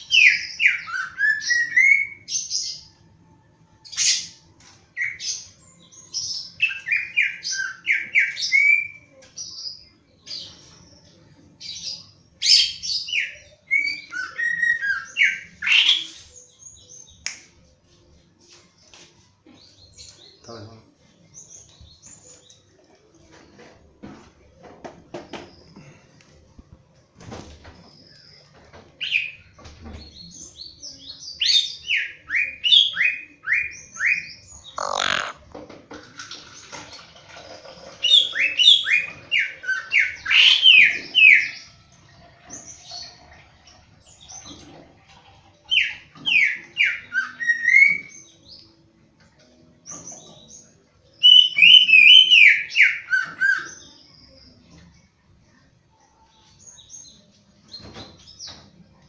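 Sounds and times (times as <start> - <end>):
bird singing whistled notes: 51.2 - 54.0.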